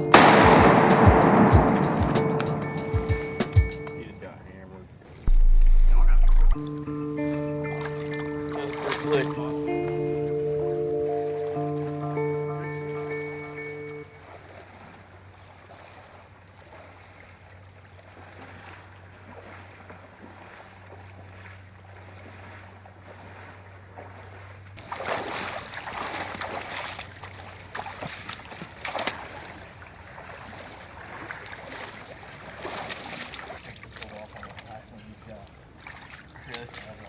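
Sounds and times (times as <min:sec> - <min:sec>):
sharp knock: 0:00.2 - 0:04.0, 0:05.3 - 0:06.6
water sloshing and splashing: 0:05.1 - 0:06.9, 0:07.6 - 0:10.1, 0:14.1 - 0:37.0
steady low hum: 0:05.2 - 0:06.7.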